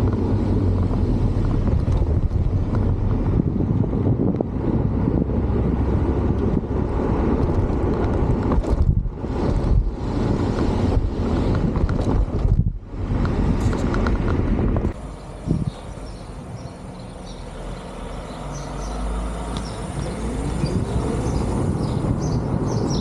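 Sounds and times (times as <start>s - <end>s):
steady low rumble: 0.0s - 17.4s
wind buffeting microphone: 0.0s - 23.0s.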